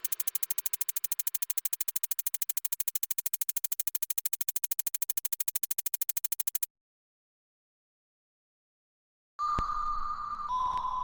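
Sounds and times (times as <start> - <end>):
rapid electronic ticking: 0.0 - 6.7.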